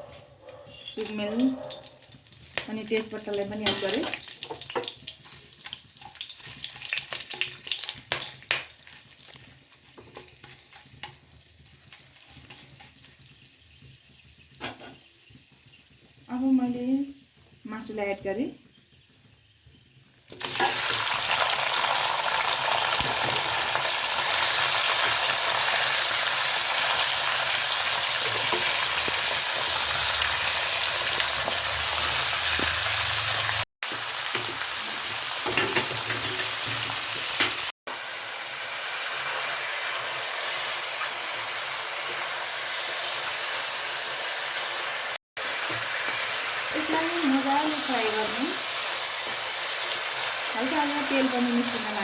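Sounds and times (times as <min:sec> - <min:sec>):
chicken sizzling in hot oil: 0:00.8 - 0:52.0.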